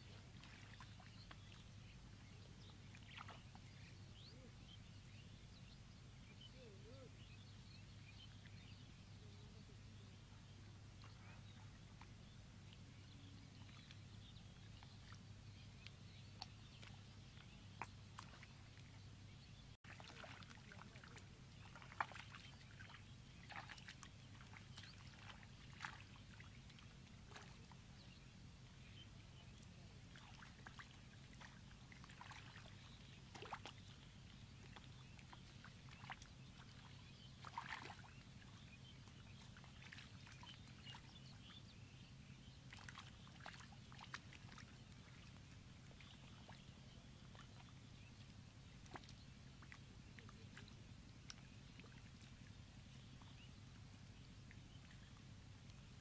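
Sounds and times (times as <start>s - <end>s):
faint low hum: 0.0s - 56.0s
hands squelching in wet mud: 23.5s - 26.1s.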